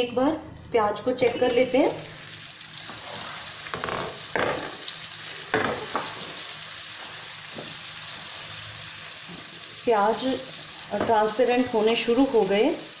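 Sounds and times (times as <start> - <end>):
onions sizzling in oil: 1.5 - 13.0
spatula stirring strokes: 2.3 - 3.8.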